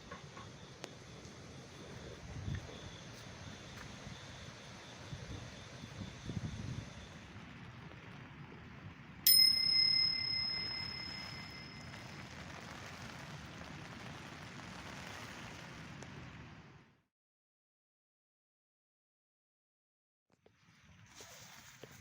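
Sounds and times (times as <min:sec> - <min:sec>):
bell ding: 0:09.3 - 0:12.1.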